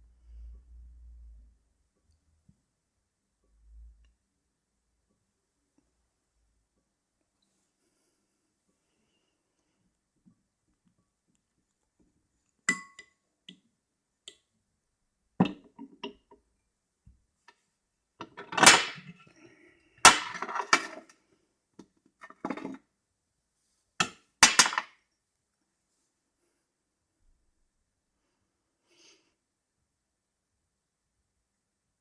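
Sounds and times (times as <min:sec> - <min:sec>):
glassware and crockery clinking: 0:12.7 - 0:13.1.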